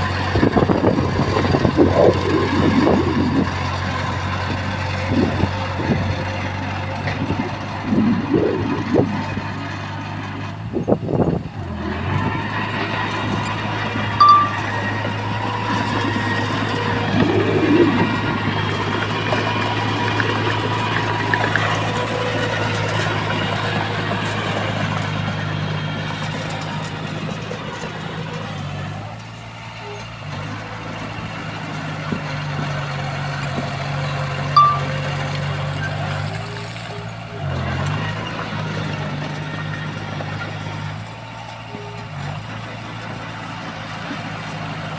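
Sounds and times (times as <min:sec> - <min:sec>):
diesel engine running: 0:00.0 - 0:44.9
high beep: 0:14.2 - 0:14.9, 0:34.6 - 0:35.1
short high-pitched tone: 0:14.2 - 0:14.9, 0:34.6 - 0:35.1.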